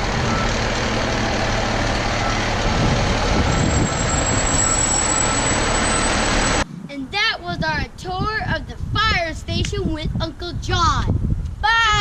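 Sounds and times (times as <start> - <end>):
fire truck engine running: 0.0 - 6.6.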